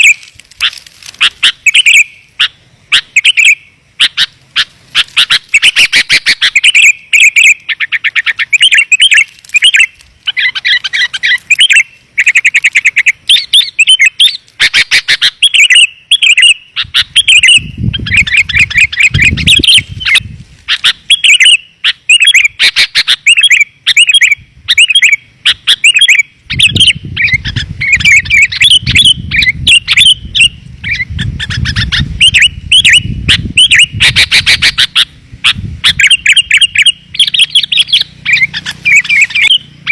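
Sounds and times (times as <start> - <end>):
bulbuls chattering and whistling: 0.0 - 39.9.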